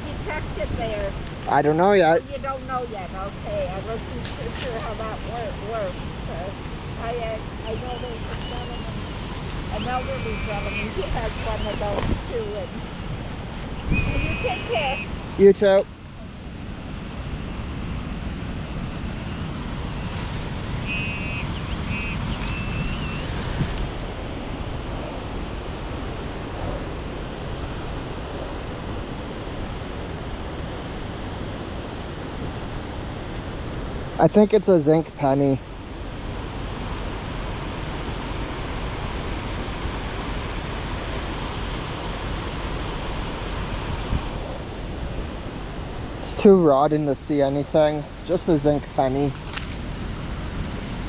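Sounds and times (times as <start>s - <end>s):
wind buffeting microphone: 0.0s - 34.2s, 35.6s - 51.0s
metal detector beeps: 9.7s - 12.0s, 13.9s - 15.1s, 20.7s - 23.4s.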